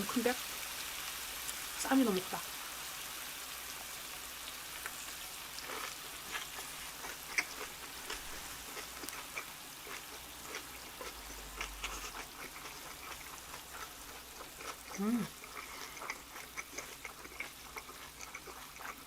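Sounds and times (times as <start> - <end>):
wet crunchy chewing: 5.6 - 19.0.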